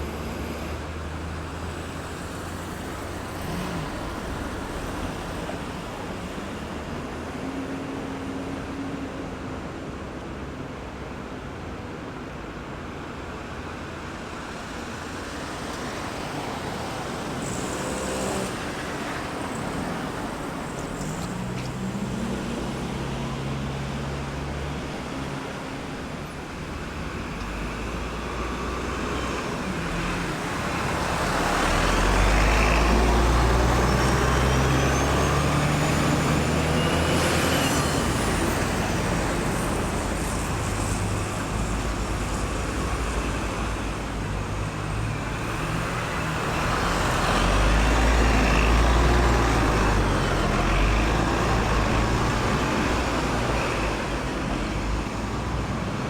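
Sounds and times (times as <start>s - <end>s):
passing cars tyre and engine noise: 0.0s - 56.0s
heavy vehicle engine drone: 14.8s - 56.0s.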